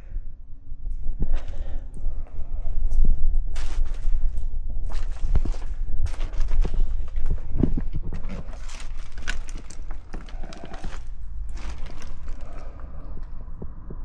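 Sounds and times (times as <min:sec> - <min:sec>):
microphone handling rumble: 0:02.6 - 0:14.0
footsteps: 0:03.6 - 0:14.0
knocks and scrapes: 0:04.8 - 0:14.0.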